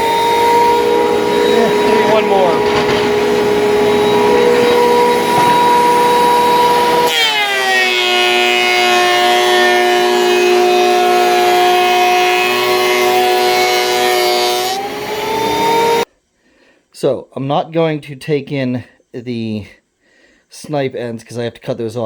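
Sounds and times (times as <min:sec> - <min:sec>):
thickness planer motor whine: 0:00.0 - 0:16.1.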